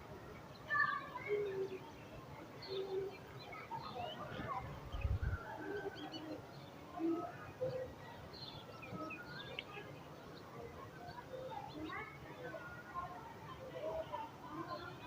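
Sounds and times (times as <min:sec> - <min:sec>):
birds chirping and calling: 0:02.6 - 0:09.7.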